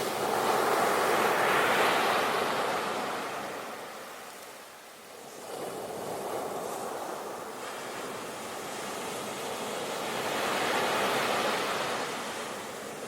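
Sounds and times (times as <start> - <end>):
sea waves breaking on shore: 5.3 - 13.0.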